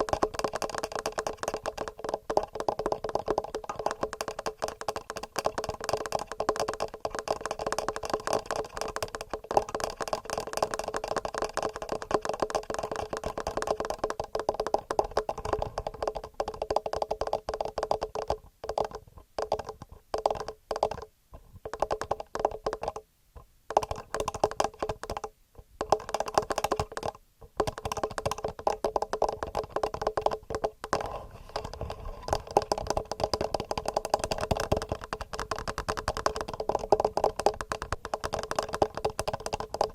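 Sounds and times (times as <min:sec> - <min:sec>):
fingernail tapping on recorder: 0:00.0 - 0:23.0, 0:23.7 - 0:31.0, 0:31.6 - 0:39.9.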